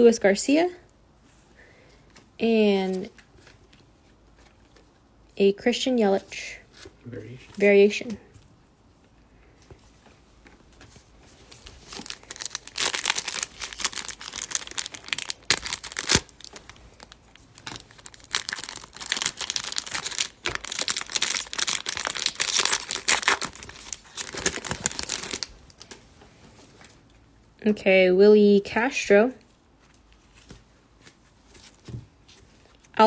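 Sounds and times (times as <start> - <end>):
wrapper crinkling and tearing: 11.5 - 26.0.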